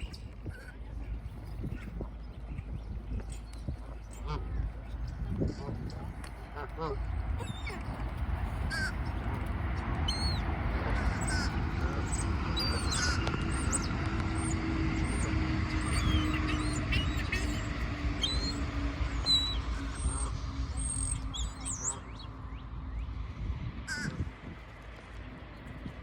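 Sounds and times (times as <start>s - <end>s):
faint drone dropping in pitch: 0.0s - 26.0s
low rumble: 0.0s - 26.0s
small birds chirping: 7.4s - 23.1s.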